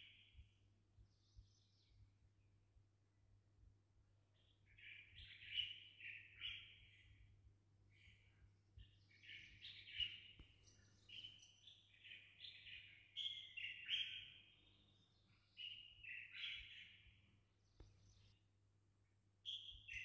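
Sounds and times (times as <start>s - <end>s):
songbird chirping and trilling: 4.4s - 7.3s, 8.0s - 20.0s.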